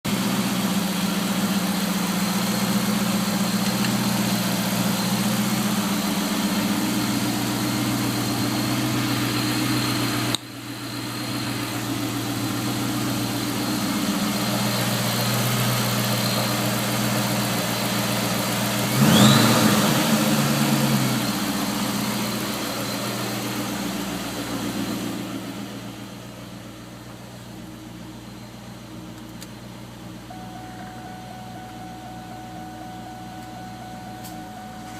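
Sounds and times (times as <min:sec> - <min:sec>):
car engine idling: 0:00.0 - 0:34.9
odd engine noise: 0:00.0 - 0:34.9
engine revving: 0:11.0 - 0:25.9.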